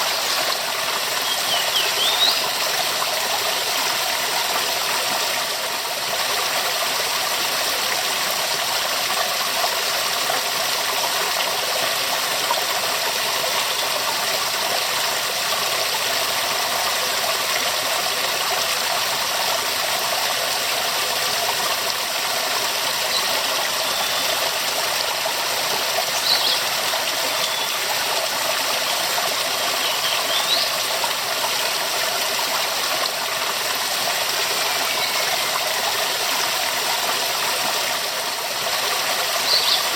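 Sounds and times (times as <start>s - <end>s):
waterfall rushing: 0.0s - 5.6s, 22.4s - 39.9s.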